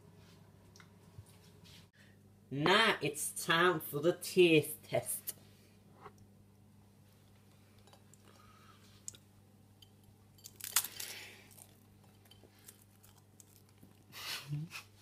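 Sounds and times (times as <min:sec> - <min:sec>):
quiet chewing: 0:07.2 - 0:10.1, 0:10.7 - 0:15.0
cracker crunch: 0:10.4 - 0:14.1.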